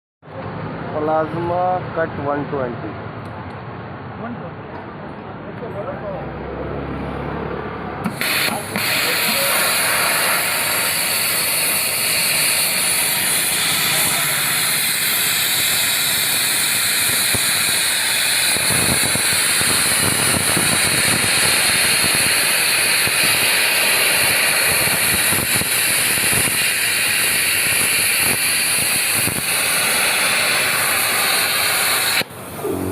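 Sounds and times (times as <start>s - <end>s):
plasma cutter hissing: 8.0s - 32.9s.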